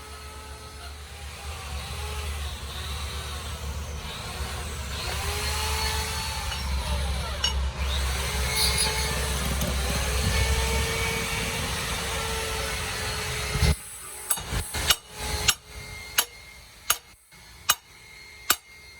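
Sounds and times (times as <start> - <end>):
power tool whining: 0.0 - 18.9
low hum: 3.8 - 13.6.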